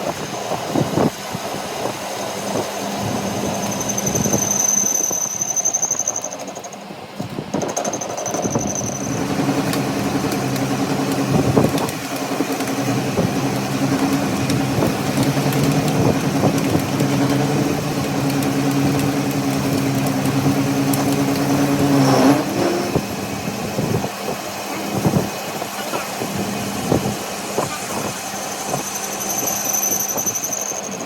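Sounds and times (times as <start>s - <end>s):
machine motor humming: 8.4s - 23.4s.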